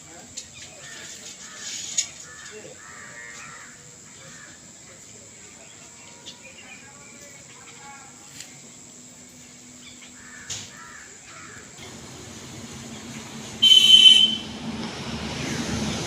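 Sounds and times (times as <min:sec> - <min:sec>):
harsh bird call: 0:12.8 - 0:14.6.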